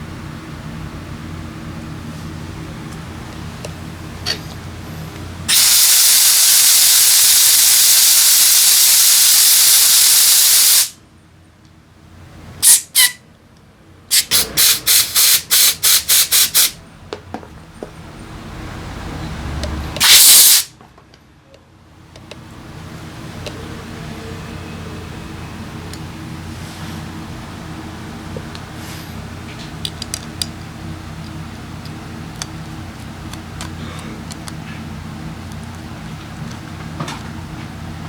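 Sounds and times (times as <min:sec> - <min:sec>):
compressed air hissing from nozzle: 0:05.5 - 0:11.0, 0:14.1 - 0:16.8, 0:20.0 - 0:20.7.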